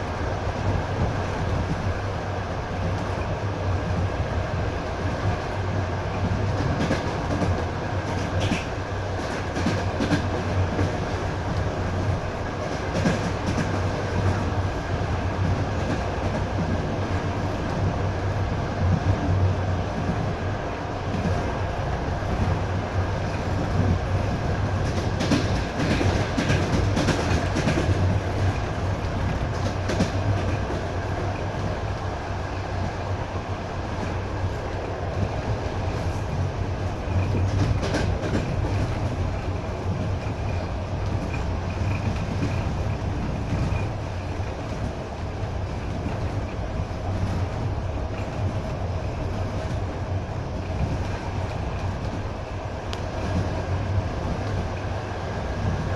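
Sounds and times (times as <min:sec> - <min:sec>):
train wheels rumbling on rails: 0:00.0 - 0:55.9
wheels clacking over rail joints: 0:22.3 - 0:32.0, 0:33.9 - 0:49.9.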